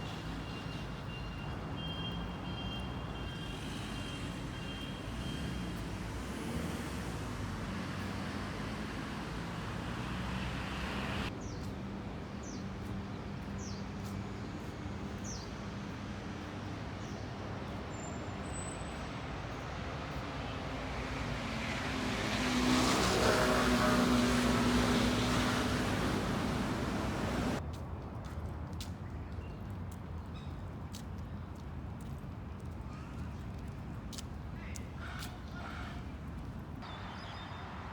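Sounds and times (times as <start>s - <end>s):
city road traffic: 0.0s - 37.9s
heavy vehicle passing: 5.9s - 11.3s, 20.9s - 27.6s.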